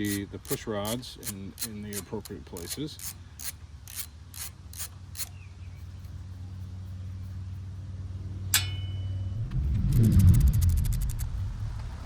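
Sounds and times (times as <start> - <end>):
socket ratchet clicking: 0.0 - 5.3
steady low hum: 0.0 - 12.0
sharp metallic clink: 8.5 - 9.3
loud rumble: 9.2 - 12.0.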